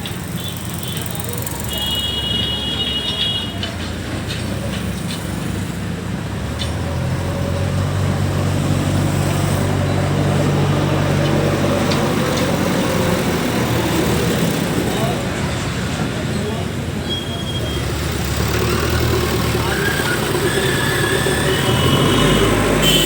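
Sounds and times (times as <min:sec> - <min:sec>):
vehicle engine running: 0:17.7 - 0:23.0.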